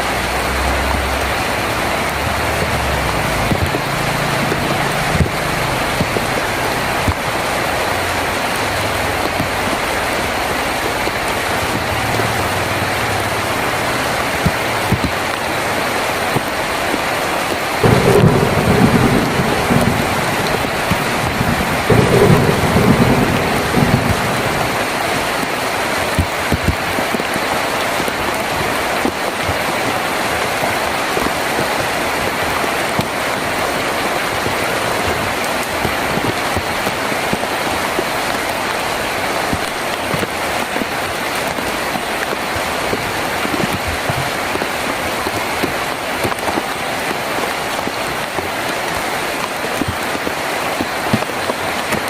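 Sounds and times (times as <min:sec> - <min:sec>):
rain on a tin roof: 0:00.0 - 0:52.0
low rumble of thunder: 0:17.8 - 0:25.6.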